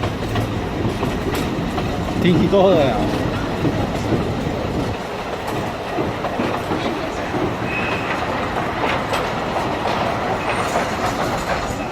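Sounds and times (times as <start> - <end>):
train rumbling: 0.0 - 11.9
wheels clicking over rails: 0.0 - 11.9
wheel squeal: 7.6 - 8.4, 10.4 - 11.9.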